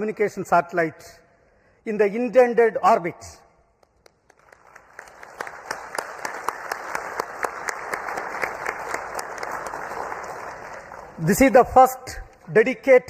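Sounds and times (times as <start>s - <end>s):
audience applause: 4.3s - 11.5s.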